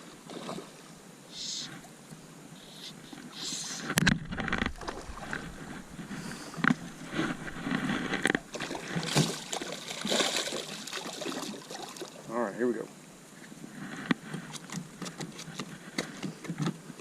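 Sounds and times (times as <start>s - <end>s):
water splashing around boat: 0.0s - 1.6s, 3.0s - 12.3s.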